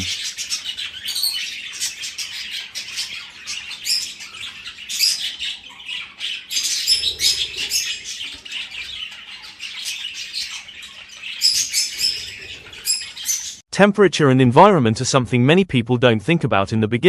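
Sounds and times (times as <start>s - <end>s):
budgerigar squawk: 0.0s - 13.6s
budgerigars chirping and chattering: 0.0s - 13.6s.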